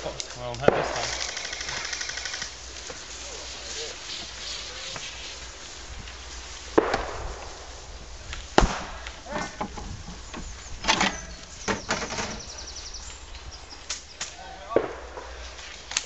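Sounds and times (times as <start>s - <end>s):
sharp knocks and cracks: 6.7s - 7.6s, 8.3s - 12.5s.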